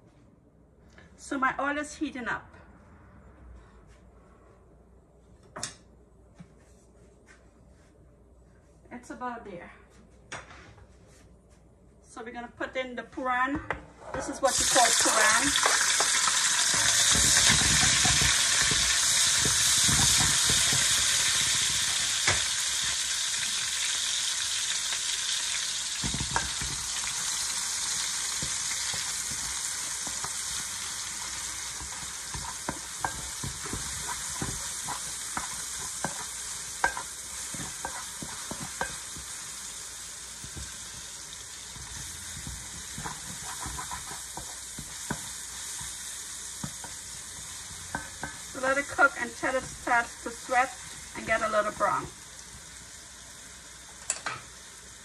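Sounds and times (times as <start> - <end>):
vegetables sizzling in hot oil: 14.5 - 55.0
spatula scraping a pot: 15.1 - 22.0, 28.7 - 39.2, 41.8 - 45.2.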